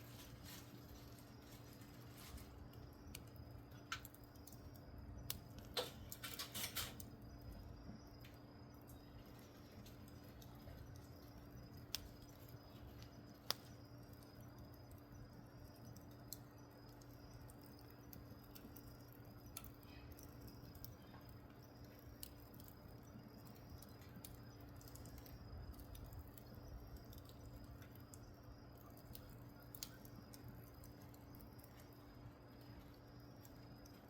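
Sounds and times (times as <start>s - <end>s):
wood fire crackling and popping: 0.0s - 34.0s
steady low hum: 7.0s - 34.0s.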